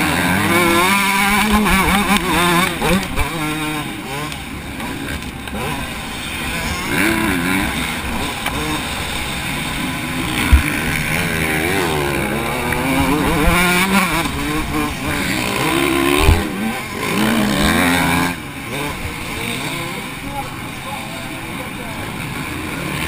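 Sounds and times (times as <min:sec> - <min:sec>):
motocross engine revving: 0:00.0 - 0:23.0
sharp thumps: 0:10.3 - 0:11.3, 0:12.1 - 0:16.6.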